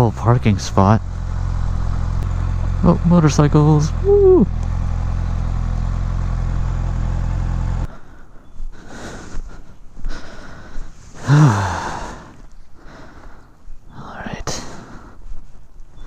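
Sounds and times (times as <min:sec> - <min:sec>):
motorcycle engine idling: 0:00.0 - 0:07.9
short falling voice-like sound: 0:04.0 - 0:04.6.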